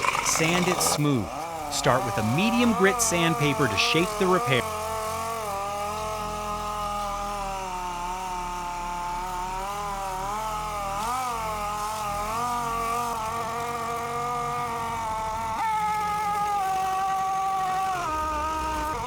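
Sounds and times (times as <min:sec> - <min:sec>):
electric sander whining: 0:00.0 - 0:19.0.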